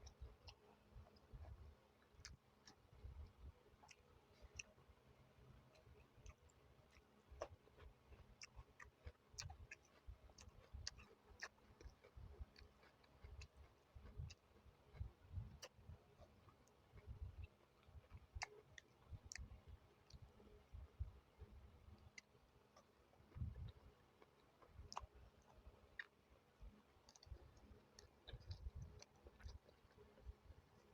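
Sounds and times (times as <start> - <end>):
mouth and tongue clicks: 5.7 - 20.5, 21.9 - 30.9
soft chewing thumps: 5.7 - 30.9.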